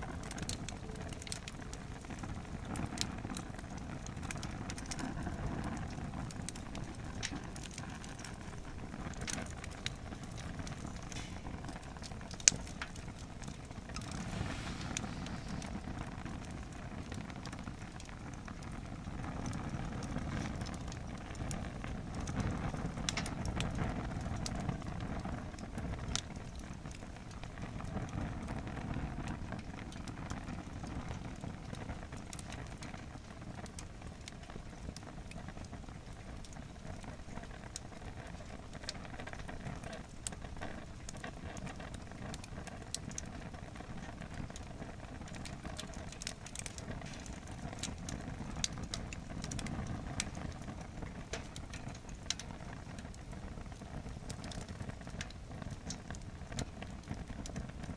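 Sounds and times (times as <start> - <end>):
fire rushing flame: 0.0 - 57.9
logs crackling and popping: 0.0 - 57.9.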